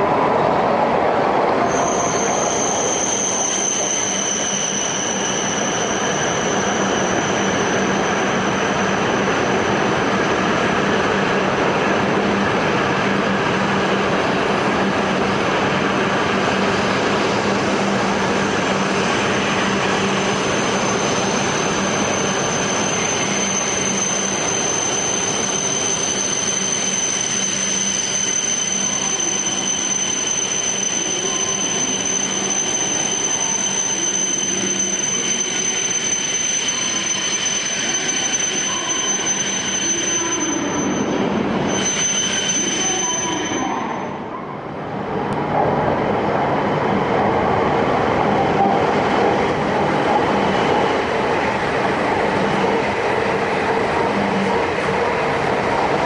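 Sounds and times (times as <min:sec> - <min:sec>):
high-pitched brake squeal: 0:01.6 - 0:10.7, 0:18.4 - 0:44.7.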